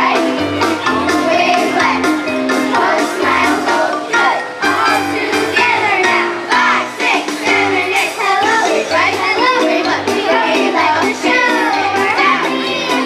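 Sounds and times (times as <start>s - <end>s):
accompaniment with bass beat: 0.0s - 13.0s
children's chorus singing: 0.0s - 13.0s.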